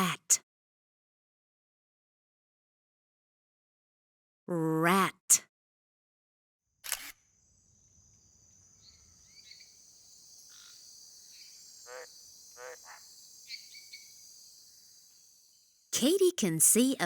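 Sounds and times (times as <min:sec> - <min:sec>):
cricket chirring: 0:07.0 - 0:15.9
frog croaks: 0:11.8 - 0:14.2.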